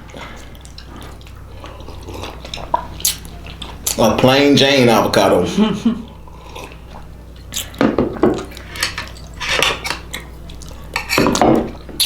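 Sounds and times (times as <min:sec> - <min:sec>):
cutlery clinking against a bowl: 0:07.6 - 0:11.8.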